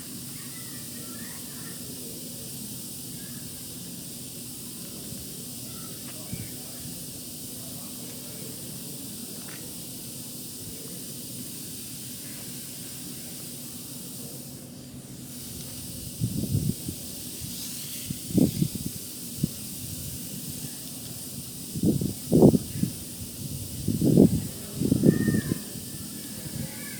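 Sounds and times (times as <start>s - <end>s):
steady hiss: 0.0s - 26.9s.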